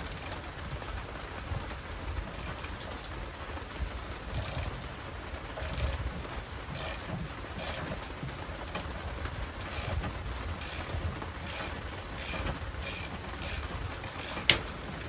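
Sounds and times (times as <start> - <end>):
ratchet clicking: 2.3 - 2.8, 4.3 - 4.8, 5.6 - 6.1, 6.7 - 15.0.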